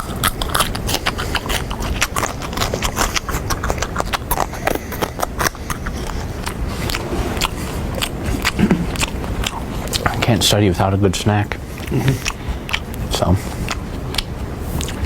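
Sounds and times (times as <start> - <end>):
crunching and chewing of snack: 0.0 - 15.0.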